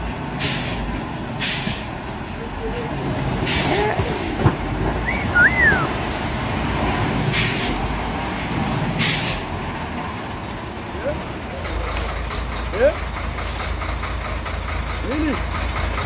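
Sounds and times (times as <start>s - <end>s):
heavy truck engine rumbling: 0.0s - 16.0s
air brake hiss: 0.4s - 1.9s, 7.2s - 7.8s, 8.7s - 9.6s, 13.4s - 13.8s.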